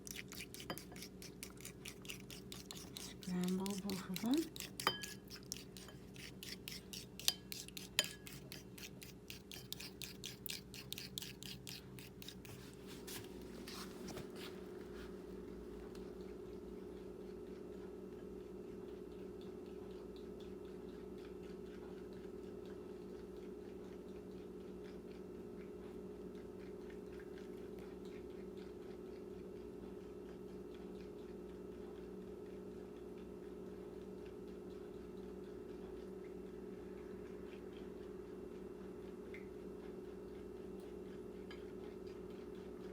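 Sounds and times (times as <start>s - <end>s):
fork beating eggs in bowl: 0.0s - 14.6s
microwave oven humming: 14.5s - 42.9s.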